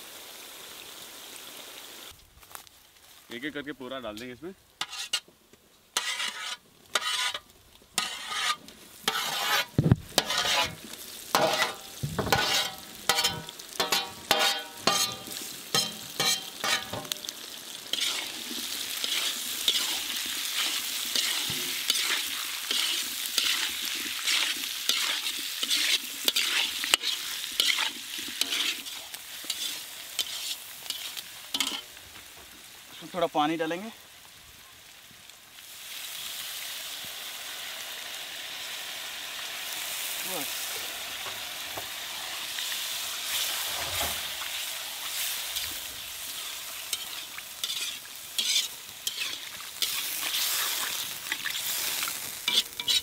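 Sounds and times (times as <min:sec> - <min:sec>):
kidneys sizzling in oil: 0:00.0 - 0:53.0
spatula scraping metal plate: 0:04.8 - 0:05.2, 0:06.0 - 0:07.4, 0:08.0 - 0:10.8, 0:11.4 - 0:17.2, 0:25.7 - 0:28.9, 0:47.0 - 0:50.0, 0:52.5 - 0:53.0.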